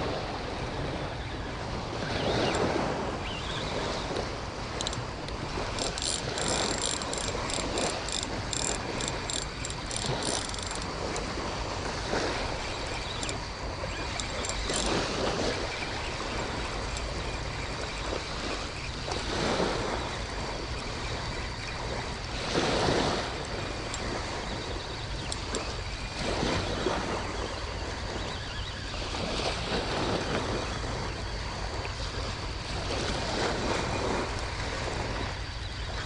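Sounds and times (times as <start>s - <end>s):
light surf washing on beach: 0.0s - 9.2s, 10.1s - 36.0s
wind on microphone: 0.0s - 36.0s
rhythmic high ticking: 5.8s - 10.9s.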